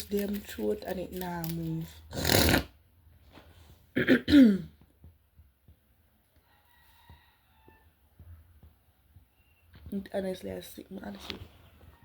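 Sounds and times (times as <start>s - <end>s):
woman coughing: 4.0s - 4.8s.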